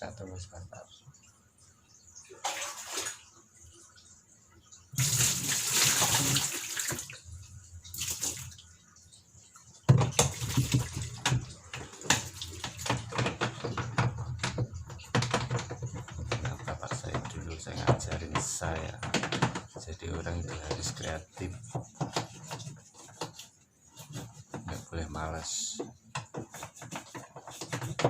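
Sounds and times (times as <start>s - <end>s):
water gushing: 2.1s - 28.0s
water splash: 2.3s - 3.3s, 5.0s - 7.2s
rapid clicks and knocks: 9.9s - 28.0s.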